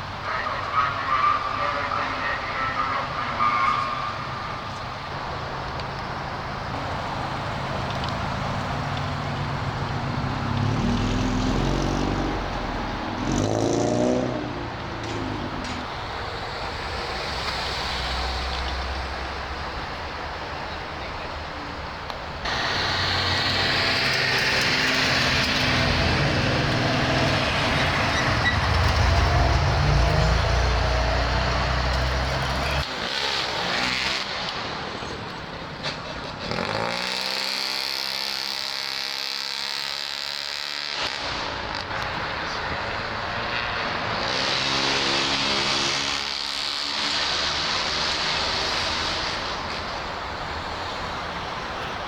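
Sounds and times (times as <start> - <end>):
car engines driving past: 0.0 - 52.0
engine revving: 7.8 - 19.6, 22.4 - 34.7, 36.4 - 49.9.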